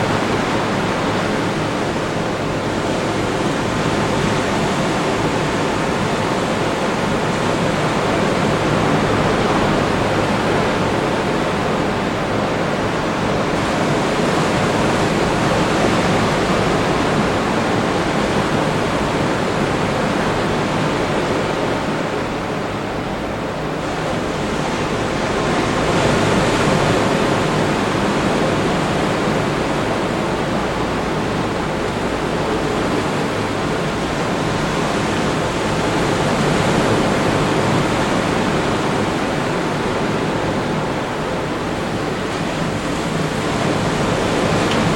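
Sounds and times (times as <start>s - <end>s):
surf breaking on beach: 23.8s - 44.9s.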